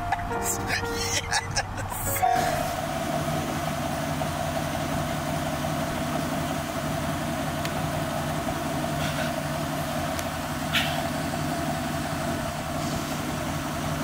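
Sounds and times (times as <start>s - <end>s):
car engine running: 1.0s - 14.0s.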